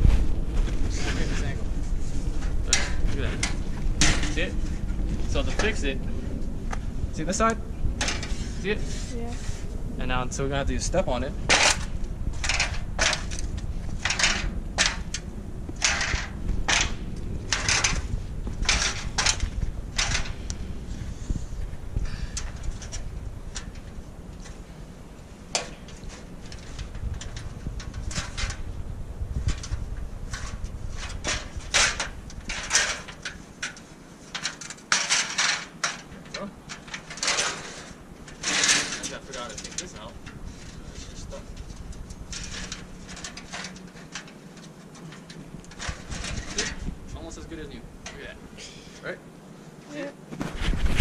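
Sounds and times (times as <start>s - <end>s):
metal plate scraping and flexing: 0.0s - 6.5s, 8.0s - 9.7s, 10.7s - 47.5s
metal plate crunching underfoot: 11.0s - 20.5s.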